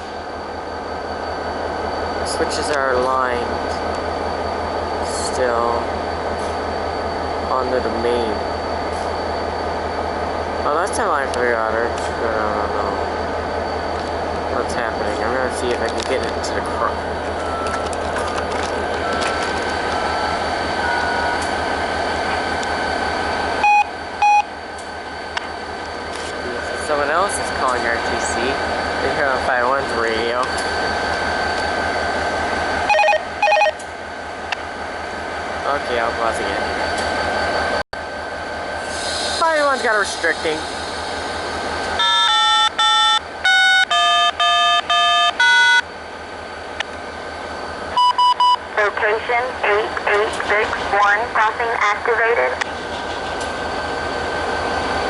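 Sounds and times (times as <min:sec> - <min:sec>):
diesel locomotive idling: 0:00.0 - 0:55.0
short electronic radio beeps: 0:23.6 - 0:24.5, 0:32.9 - 0:33.8, 0:48.0 - 0:50.8
touch-tone beeps: 0:23.6 - 0:24.5, 0:32.9 - 0:33.8, 0:42.0 - 0:45.8, 0:48.0 - 0:48.6
synthesized voice speaking: 0:48.8 - 0:52.6.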